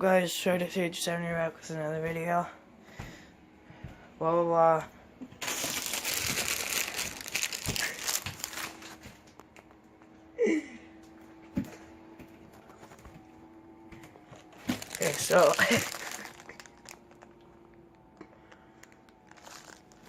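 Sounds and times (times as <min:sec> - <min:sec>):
loud crinkling and rustling: 0:05.4 - 0:09.5, 0:14.3 - 0:17.7, 0:18.8 - 0:20.0.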